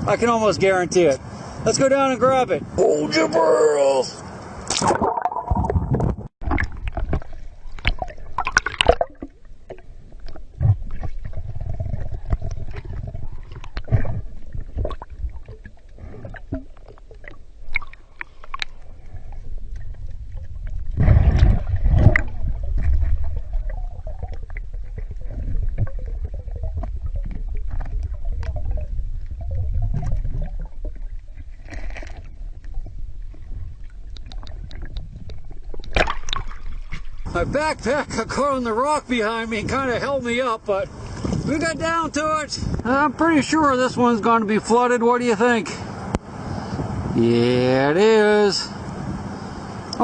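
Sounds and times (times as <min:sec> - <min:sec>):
underwater clicks and knocks: 0:04.7 - 0:37.3
underwater water rumble: 0:04.8 - 0:43.3.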